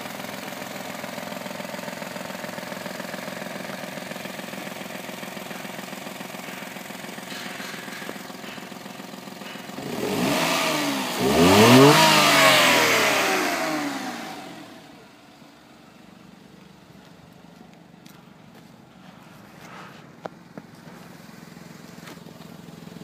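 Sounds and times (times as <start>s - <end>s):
car engine revving: 7.2s - 15.3s.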